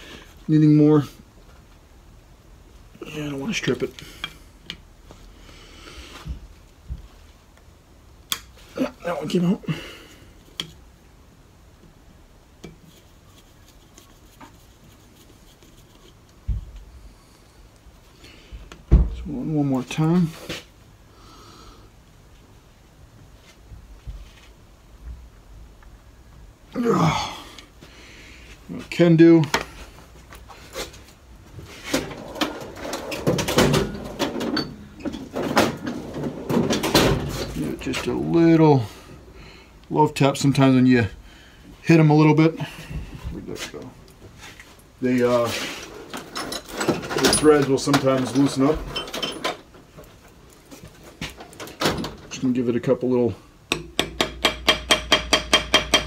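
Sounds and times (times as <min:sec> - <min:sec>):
metal tools knocking and clinking: 0:34.0 - 0:35.3, 0:46.2 - 0:49.6.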